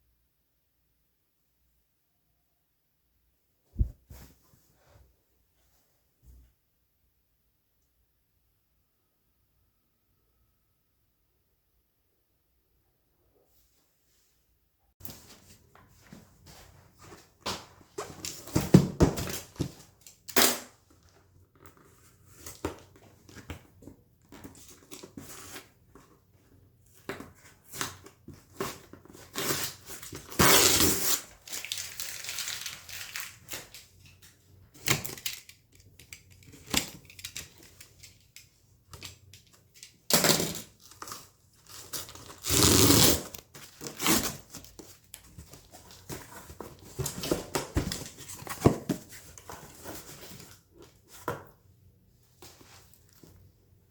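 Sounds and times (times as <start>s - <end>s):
packaging rustling and crinkling: 28.5s - 34.2s.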